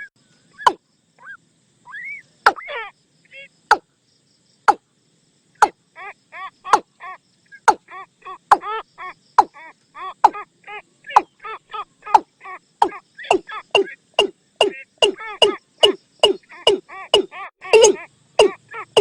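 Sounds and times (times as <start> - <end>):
bird knocking calls: 2.5 - 2.7, 10.2 - 10.4, 12.1 - 19.0
short hollow bird notes: 12.8 - 19.0.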